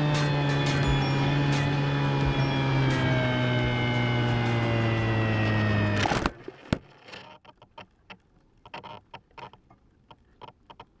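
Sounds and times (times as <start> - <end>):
electric motor and propeller whine: 0.0 - 7.4.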